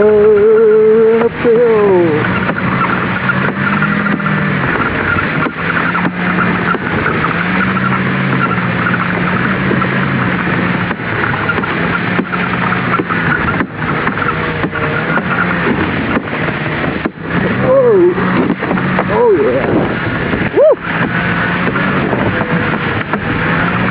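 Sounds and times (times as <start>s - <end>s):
vehicle engine running: 0.0s - 23.9s
loud rushing scraping noise: 1.2s - 23.9s.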